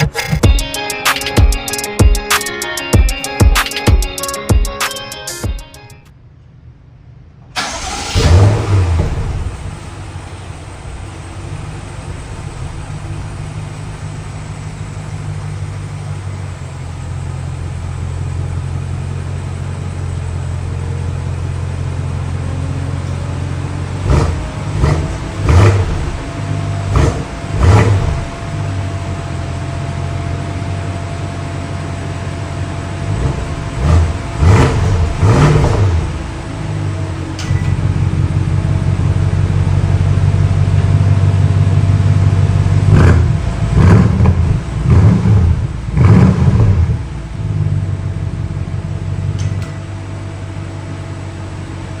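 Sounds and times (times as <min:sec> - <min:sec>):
car engine idling and revving: 0:00.0 - 0:52.0.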